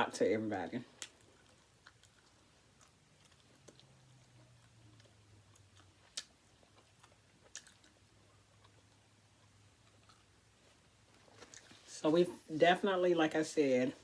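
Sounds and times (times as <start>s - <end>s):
low steady hum: 0.0s - 14.0s
faint chewing with mouth clicks: 0.8s - 11.9s.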